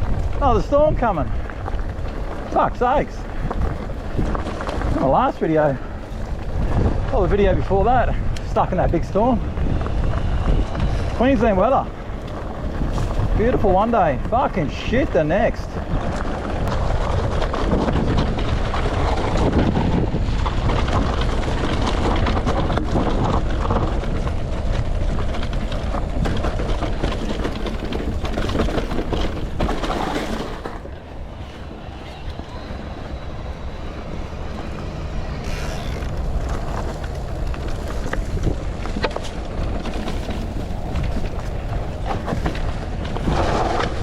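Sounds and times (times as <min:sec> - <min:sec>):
bike tyres on dirt trail: 0:00.0 - 0:44.0
wind rushing over microphone: 0:00.0 - 0:44.0.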